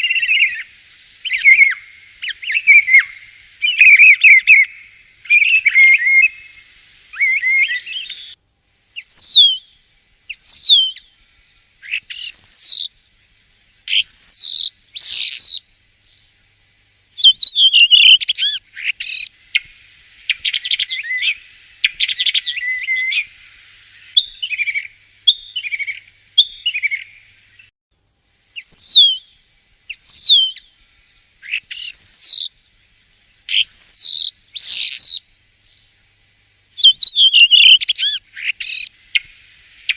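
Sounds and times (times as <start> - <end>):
starling singing: 1.2 - 6.5, 9.0 - 9.6, 10.3 - 11.0, 11.9 - 12.9, 13.9 - 15.6, 17.2 - 19.7, 28.6 - 29.2, 29.9 - 30.6, 31.5 - 32.5, 33.5 - 35.2, 36.8 - 39.3.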